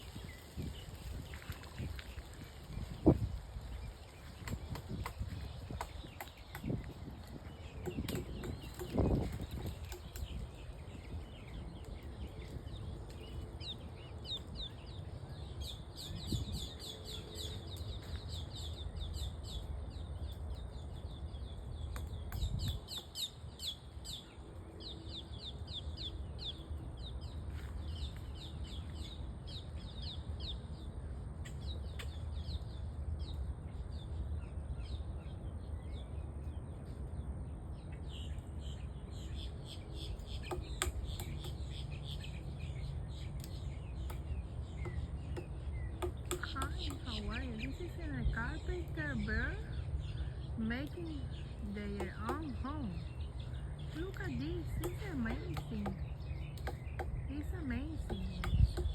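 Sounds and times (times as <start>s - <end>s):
birds chirping: 0.0s - 58.9s
low wind rumble: 0.0s - 58.9s
sharp taps: 43.4s - 47.2s.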